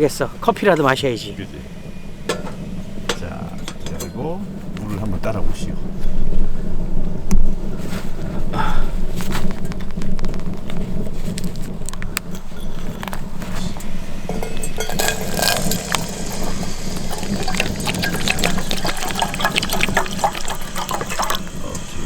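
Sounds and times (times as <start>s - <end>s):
dense crackling ticks: 8.2s - 22.0s
water pouring into a pot: 12.7s - 22.0s.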